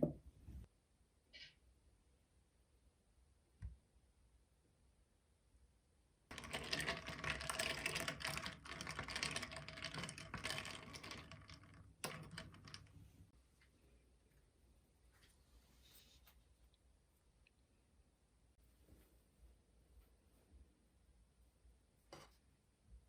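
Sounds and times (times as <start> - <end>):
rapid clicking and crackling: 6.3 - 13.3.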